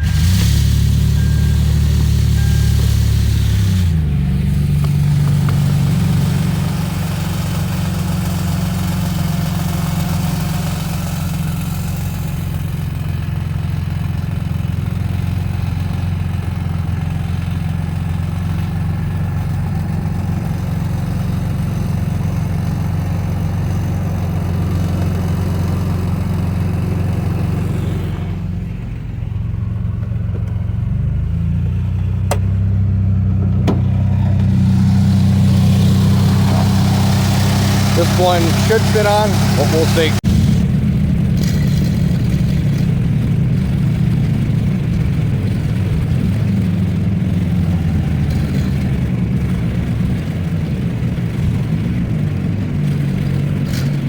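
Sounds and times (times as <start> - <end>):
engine running at low speed: 0.0 - 54.0.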